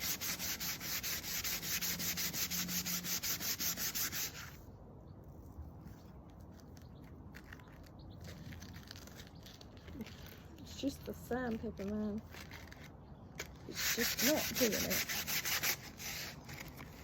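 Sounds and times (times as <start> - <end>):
sanding wood by hand: 0.0 - 4.6, 13.7 - 16.6.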